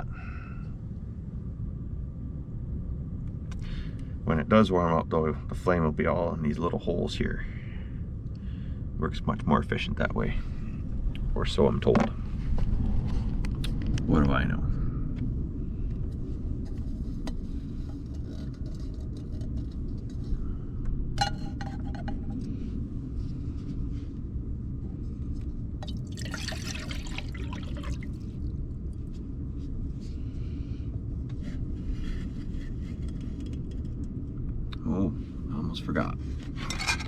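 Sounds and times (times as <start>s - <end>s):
wind buffeting: 0.0s - 35.6s
diesel heater running: 0.0s - 37.0s
liquid pouring: 25.8s - 28.2s.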